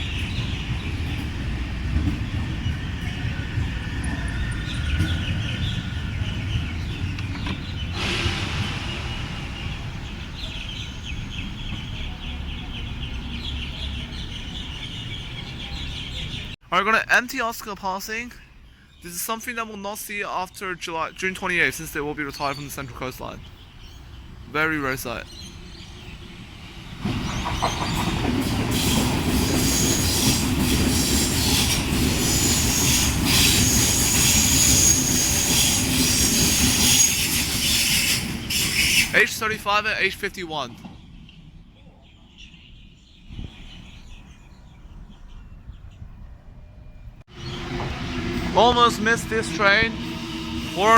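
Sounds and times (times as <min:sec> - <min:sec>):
birds chattering: 0:00.0 - 0:08.0, 0:09.6 - 0:46.2
train wheels rumbling on rail: 0:00.0 - 0:13.2, 0:25.2 - 0:41.7, 0:47.1 - 0:50.9
high wheel squeal: 0:02.8 - 0:11.3, 0:27.3 - 0:39.3, 0:47.3 - 0:50.9.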